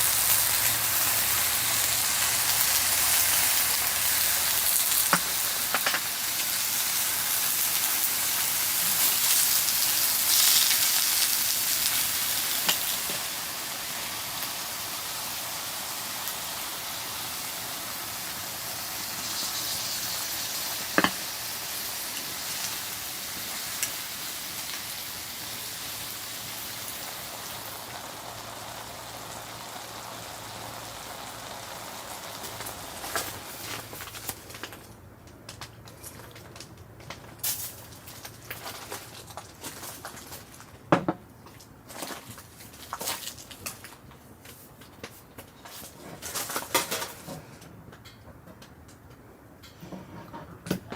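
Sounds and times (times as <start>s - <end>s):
sharp pops of burning wood: 0.0s - 13.3s, 18.3s - 24.0s, 25.6s - 37.7s
firewood burning with a hiss: 0.0s - 40.8s.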